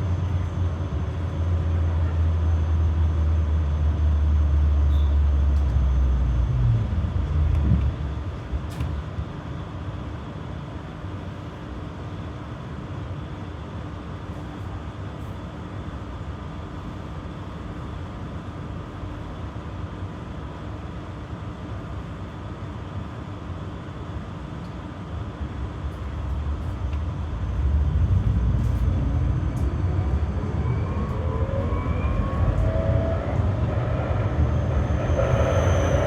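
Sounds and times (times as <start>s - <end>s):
tram interior hum: 0.0s - 36.0s
traction motor whine: 26.4s - 36.0s.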